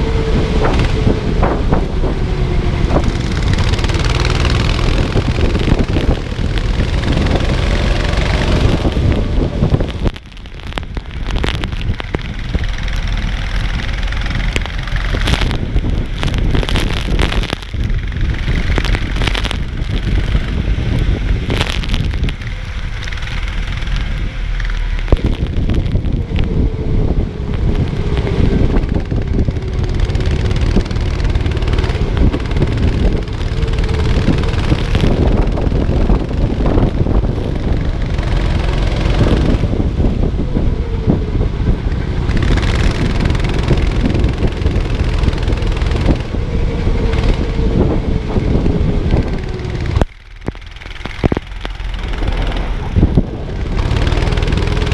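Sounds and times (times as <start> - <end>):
go-kart engine running: 0.0 - 54.9
wind buffeting microphone: 0.0 - 54.9.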